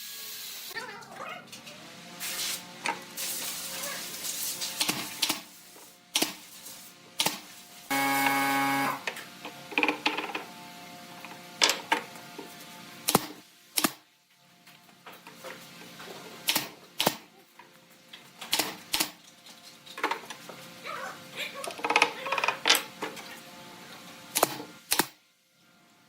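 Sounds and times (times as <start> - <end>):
loud buzzing tone: 7.9 - 9.1.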